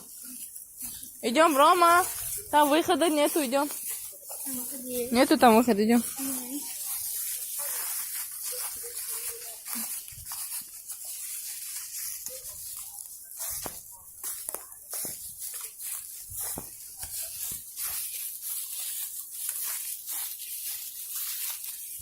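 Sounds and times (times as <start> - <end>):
footsteps through dry undergrowth: 0.0 - 22.0.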